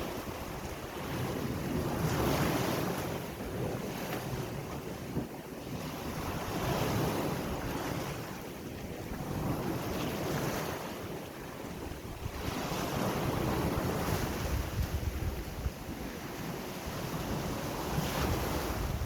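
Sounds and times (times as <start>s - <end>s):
ocean waves breaking on shore: 0.0s - 19.0s
wind noise on microphone: 0.0s - 19.0s.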